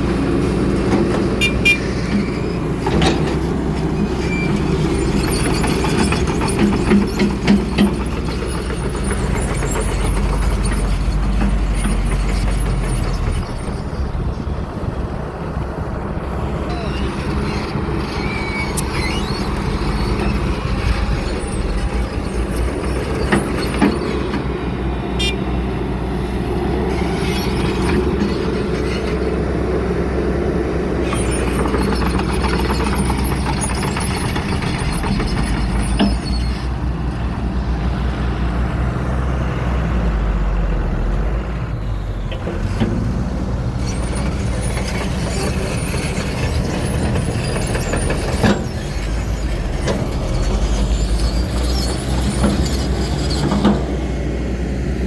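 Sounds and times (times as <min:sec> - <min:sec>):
diesel engine running: 0:00.0 - 0:55.0
sharp knocks and clanks: 0:00.8 - 0:13.5.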